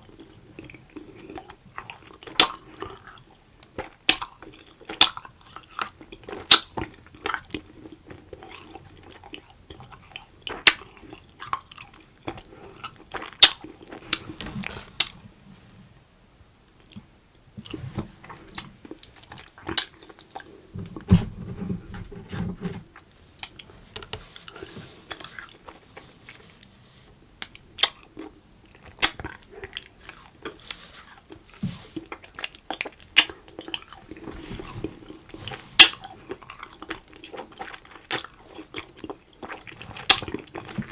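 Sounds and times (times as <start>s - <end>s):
close chewing and biting food: 27.4s - 40.9s.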